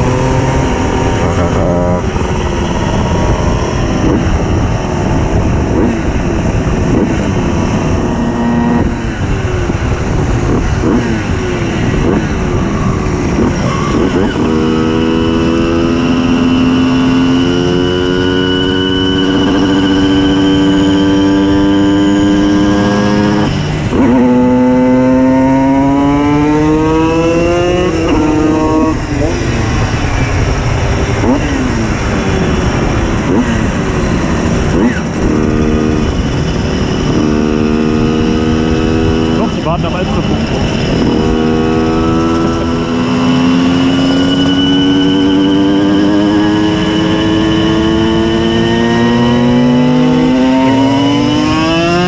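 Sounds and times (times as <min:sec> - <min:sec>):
two-stroke moped engines revving: 0:00.0 - 0:52.0.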